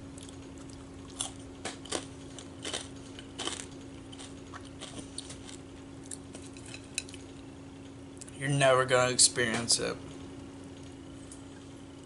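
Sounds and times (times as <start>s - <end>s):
person chewing food: 0.0s - 7.4s
steady low hum: 0.0s - 12.0s.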